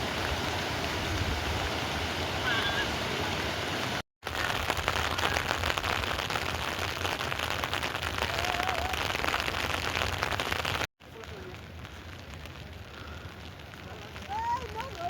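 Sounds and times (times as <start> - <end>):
heavy rain on hard surface: 0.0 - 15.0.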